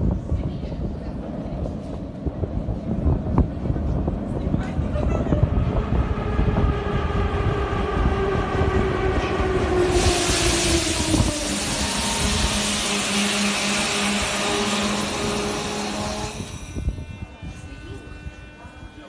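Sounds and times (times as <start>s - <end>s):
train rumbling and whining: 0.0s - 19.0s
loud steady hiss: 10.0s - 16.6s.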